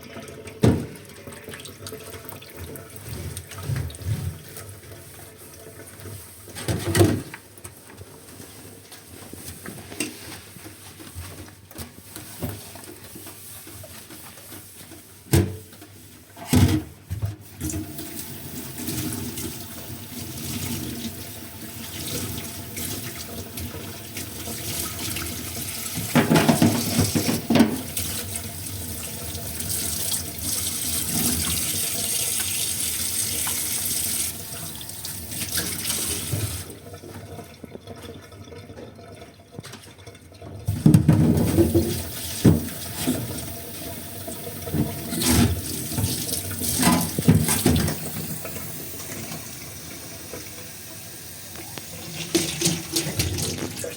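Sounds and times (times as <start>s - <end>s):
tap running into sink: 22.0s - 28.4s, 40.7s - 50.9s
dishes clattering: 26.1s - 27.9s.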